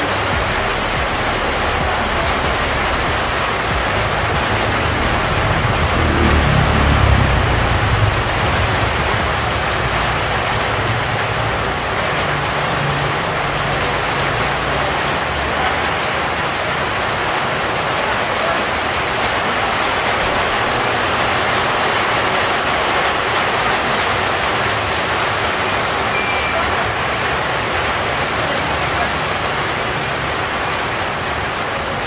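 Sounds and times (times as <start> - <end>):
rain on leaves and road: 0.0 - 32.0
low hum: 0.3 - 10.7.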